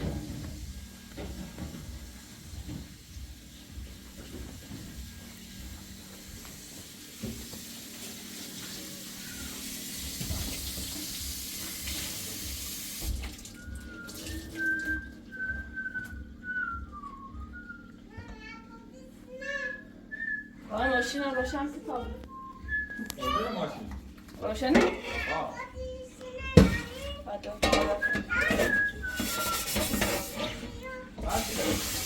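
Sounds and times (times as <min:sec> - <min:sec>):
person whistling a tune: 0:13.4 - 0:18.1, 0:19.6 - 0:21.1, 0:22.2 - 0:23.5, 0:27.8 - 0:29.8.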